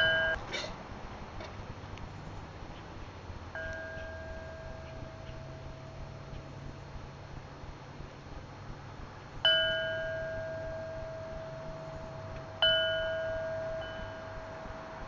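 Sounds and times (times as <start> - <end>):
metal bell chime struck: 0.0 - 0.4, 3.6 - 6.4, 9.5 - 14.9.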